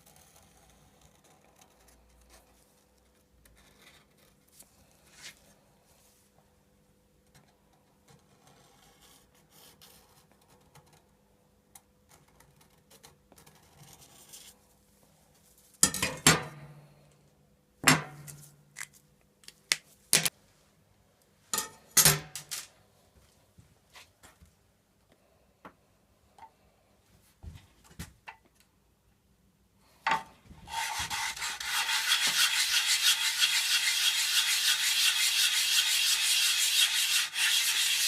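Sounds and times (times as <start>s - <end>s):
faint scraping and handling: 0.1s - 6.5s.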